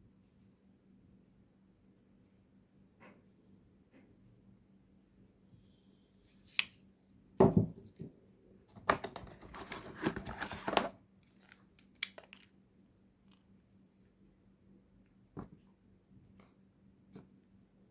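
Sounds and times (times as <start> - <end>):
wrapping rustling and crinkling: 9.2 - 12.6.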